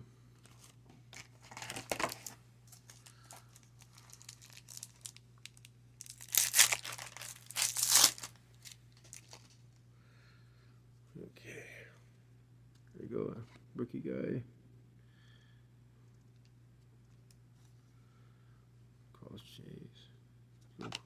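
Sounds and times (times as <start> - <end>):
card pack wrapper crinkling: 0.5 - 9.6.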